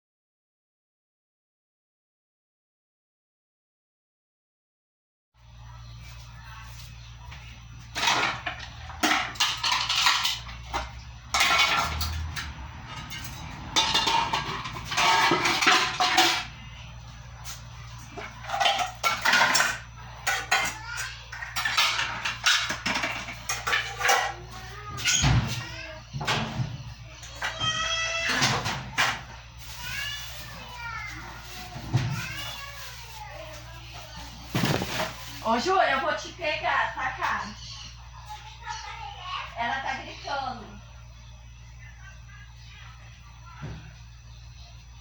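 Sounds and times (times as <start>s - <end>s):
dishes and cutlery clattering: 7.9s - 16.6s, 18.1s - 25.6s.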